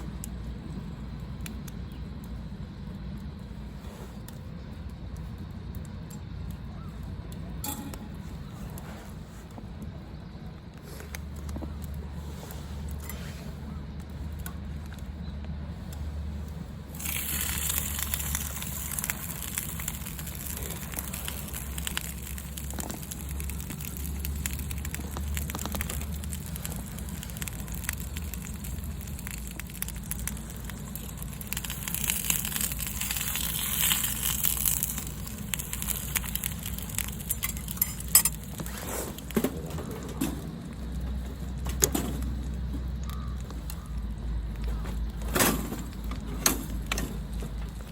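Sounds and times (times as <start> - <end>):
campfire crackling: 0.0 - 47.9
sharp pops of fire: 15.9 - 42.6.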